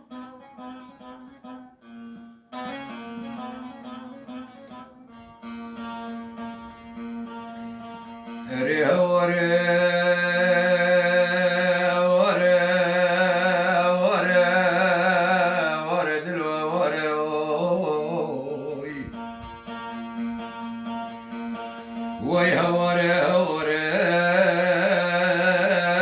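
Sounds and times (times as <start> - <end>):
plucked strings: 0.0 - 26.0
man singing with vibrato: 8.4 - 20.2, 22.1 - 26.0.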